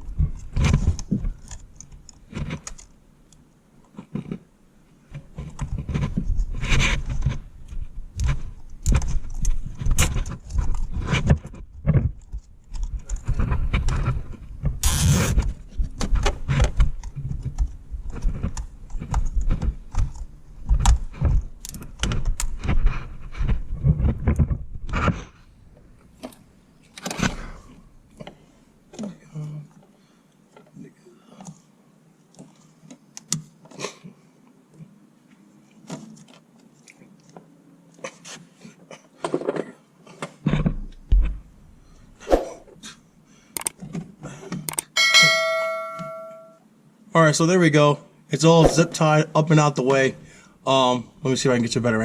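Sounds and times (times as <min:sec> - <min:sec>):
handling noise: 0:44.9 - 0:46.6.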